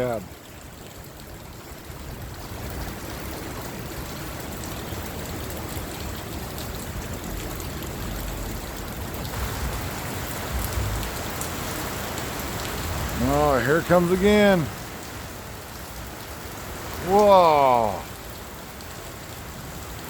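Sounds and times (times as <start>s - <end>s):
heavy rain pouring: 0.0s - 20.0s
low rumble: 10.4s - 11.4s.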